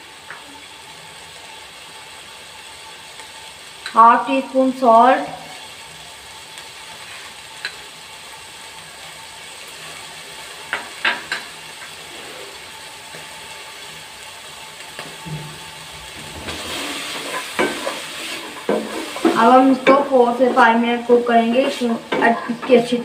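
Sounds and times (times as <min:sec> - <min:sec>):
food sizzling in oil: 0:00.0 - 0:23.0
spatula stirring in pot: 0:16.2 - 0:23.0.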